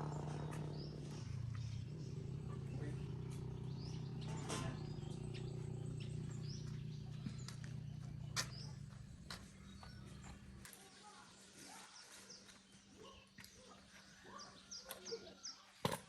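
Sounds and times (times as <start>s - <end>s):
steady low hum: 0.0s - 10.7s
birds chirping: 0.0s - 16.0s.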